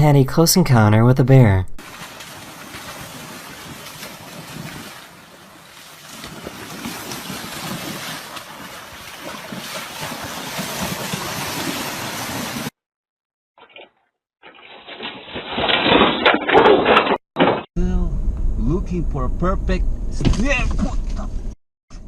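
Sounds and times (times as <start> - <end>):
water washing: 1.8 - 12.7.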